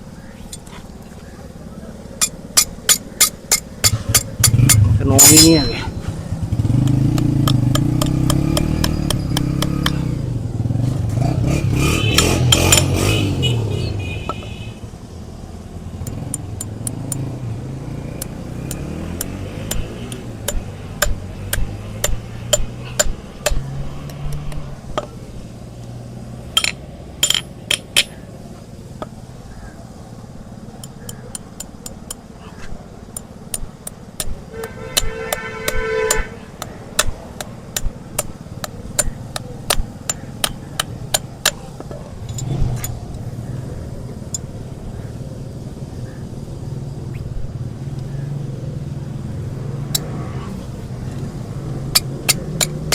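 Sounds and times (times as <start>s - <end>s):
vehicle engine running: 0.0s - 52.9s
hoof-trimming tools tapping: 2.2s - 5.8s, 6.6s - 10.2s, 12.1s - 13.0s, 16.0s - 17.3s, 18.2s - 25.2s, 26.6s - 28.2s, 30.8s - 43.0s, 51.1s - 52.9s.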